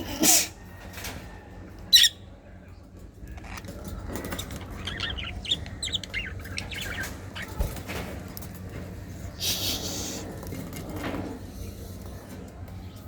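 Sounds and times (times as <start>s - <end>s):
parrots chirping: 1.9s - 2.2s, 4.4s - 7.6s.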